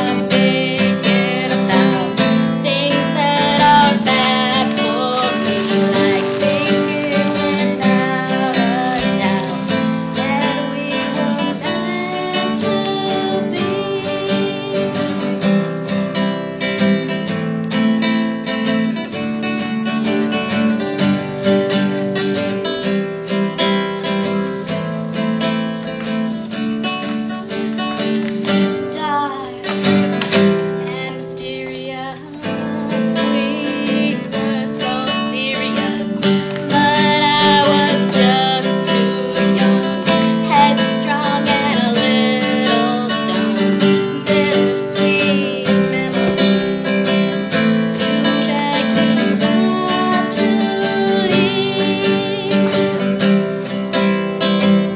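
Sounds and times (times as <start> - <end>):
woman singing: 0.0 - 15.6, 28.6 - 53.8
strummed acoustic guitar: 0.0 - 54.9.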